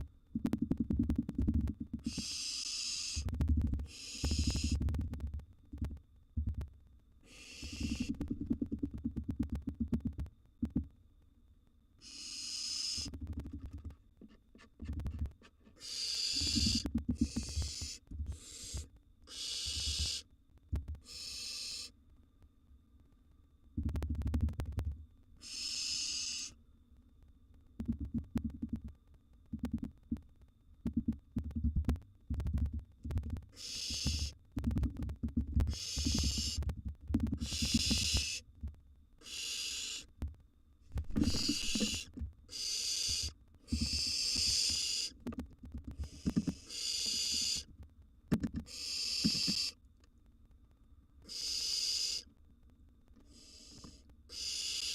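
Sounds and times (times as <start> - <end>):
owl nestlings hissing: 2.0 - 4.8, 7.2 - 8.2, 12.0 - 13.4, 15.7 - 20.3, 21.0 - 22.0, 25.4 - 26.6, 33.5 - 34.4, 35.7 - 36.6, 37.4 - 38.5, 39.2 - 40.1, 41.0 - 45.2, 46.0 - 47.7, 48.6 - 49.8, 51.2 - 52.3, 53.2 - 54.9.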